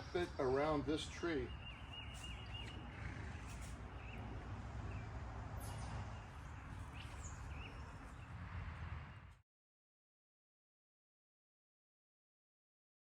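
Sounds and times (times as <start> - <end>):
birds chirping faintly: 0.0 - 9.4.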